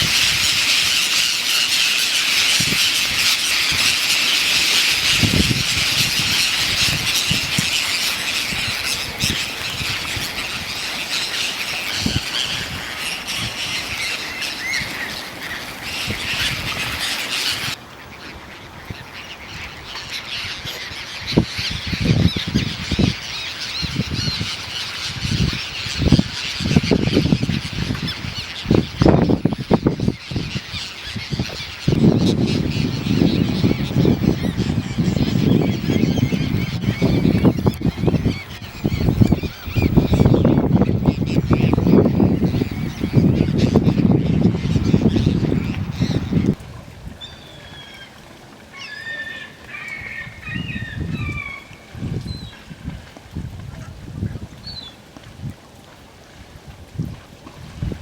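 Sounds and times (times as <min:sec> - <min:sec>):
flock of birds squawking: 0:00.0 - 0:46.6, 0:48.8 - 0:51.8.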